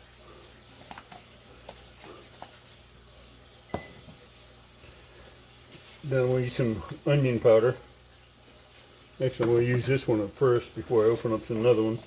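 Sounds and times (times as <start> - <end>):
sharp ringing clink: 3.7 - 4.3.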